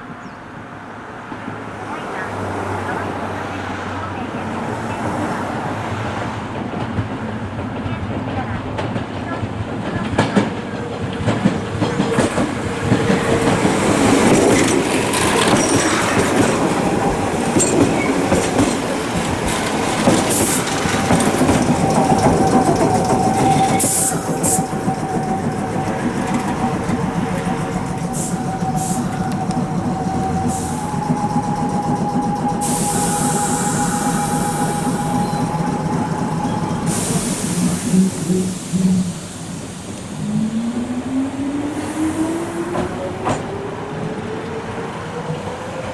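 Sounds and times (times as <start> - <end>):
electric train whine: 0.0 - 45.9
wheels clicking over rail joints: 6.0 - 40.9.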